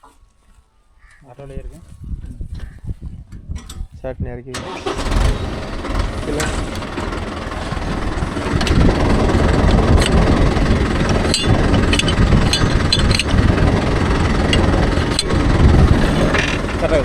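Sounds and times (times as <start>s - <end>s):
tractor engine under load: 4.5s - 17.0s
baler mechanism clacks: 4.6s - 17.0s.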